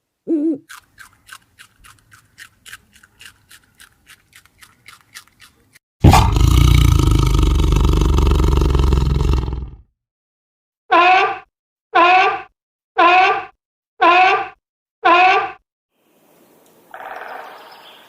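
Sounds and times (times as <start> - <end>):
large animal roaring: 6.0 - 9.8.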